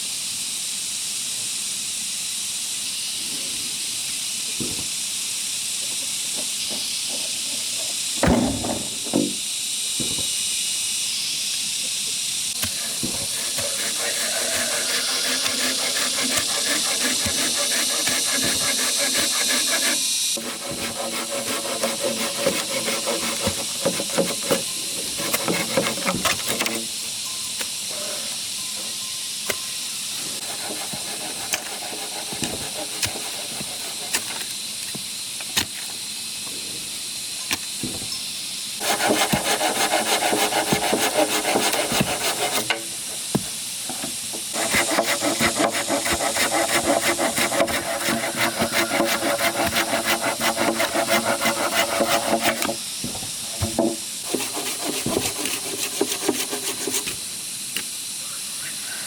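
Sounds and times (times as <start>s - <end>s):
steady high hiss: 0.0s - 59.0s
tools rasping bamboo: 12.6s - 27.0s, 30.3s - 35.0s, 38.8s - 52.8s, 53.5s - 57.2s.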